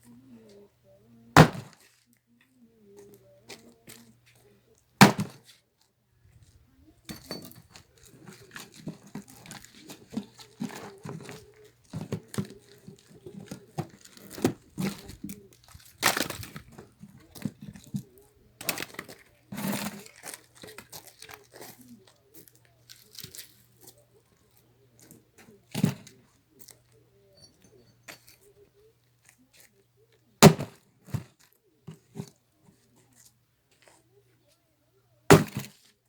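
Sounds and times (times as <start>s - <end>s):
axe splitting firewood: 1.4s - 1.8s, 5.0s - 5.4s, 7.1s - 18.0s, 30.4s - 31.3s, 35.3s - 35.7s
wood cracking and crunching: 8.0s - 17.6s.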